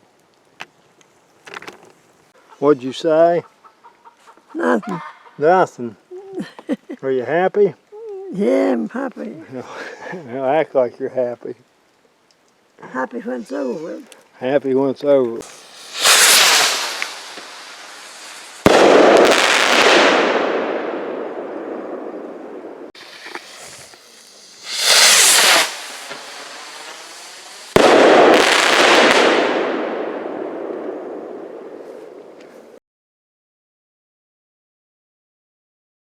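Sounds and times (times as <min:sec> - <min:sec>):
firework hissing bursts: 0:15.4 - 0:31.8
firework bangs: 0:15.4 - 0:32.4
firework crackling hiss: 0:15.4 - 0:32.8.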